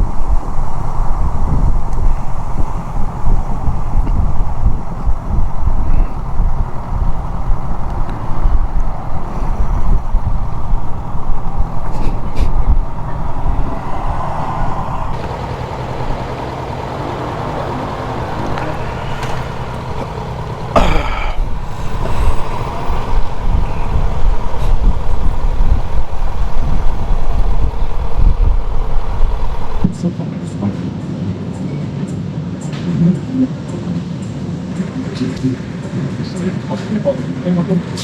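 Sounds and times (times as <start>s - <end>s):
motorcycle engine running: 0.0s - 30.0s
wind rumble on microphone: 0.0s - 30.0s.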